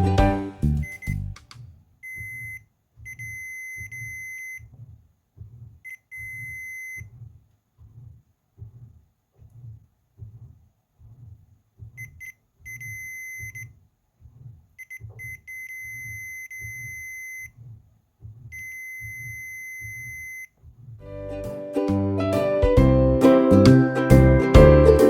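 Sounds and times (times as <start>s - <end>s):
music: 0.0s - 1.3s, 21.1s - 25.0s
stove buzzer beeping: 2.0s - 4.6s, 5.9s - 7.1s, 12.0s - 13.7s, 14.8s - 17.6s, 18.5s - 20.5s.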